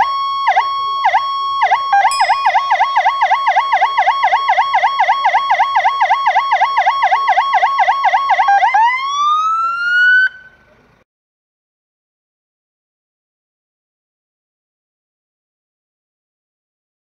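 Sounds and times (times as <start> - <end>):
fire engine siren: 0.0 - 10.7.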